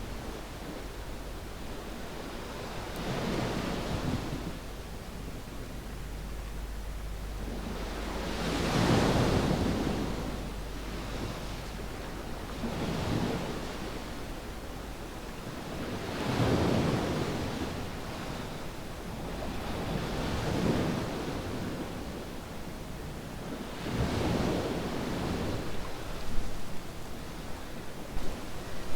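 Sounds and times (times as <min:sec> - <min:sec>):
steady surf hiss: 0:00.0 - 0:28.9
ocean waves breaking on beach: 0:07.4 - 0:14.2.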